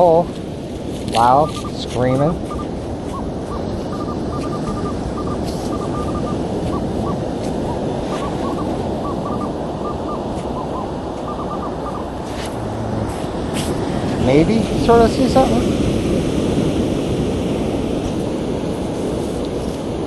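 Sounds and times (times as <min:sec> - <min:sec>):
wind: 0:00.0 - 0:20.0
metal detector beeping: 0:01.2 - 0:13.0.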